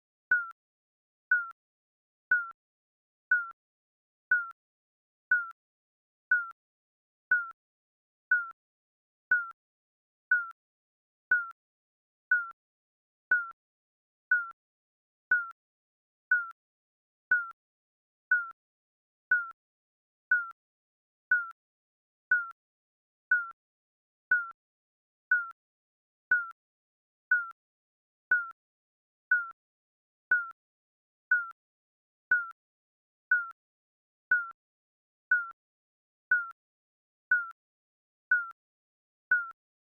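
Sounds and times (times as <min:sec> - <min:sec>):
countdown timer beeps: 0:00.3 - 0:00.5.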